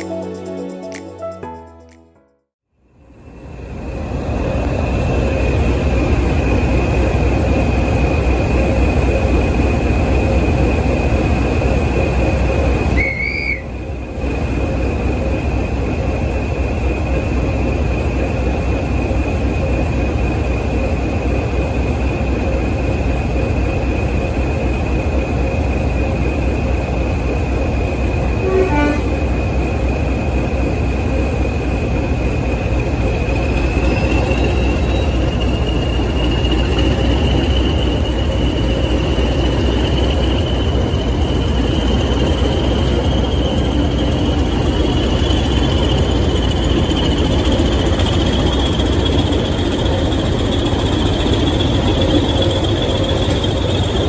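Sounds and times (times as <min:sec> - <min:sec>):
diesel locomotive engine running: 0:02.7 - 0:54.0
high whistle: 0:12.9 - 0:13.8, 0:28.4 - 0:29.1.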